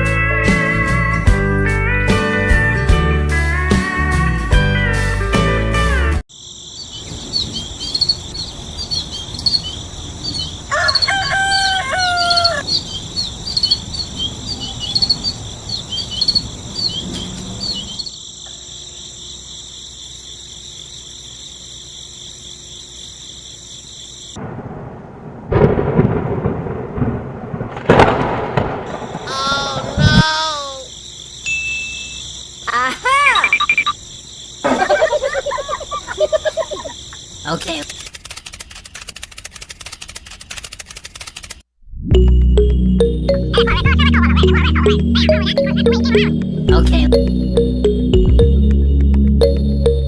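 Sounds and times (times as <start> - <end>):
insects droning and chirping: 6.3 - 28.0, 28.7 - 41.6
rooster crowing: 10.6 - 12.7.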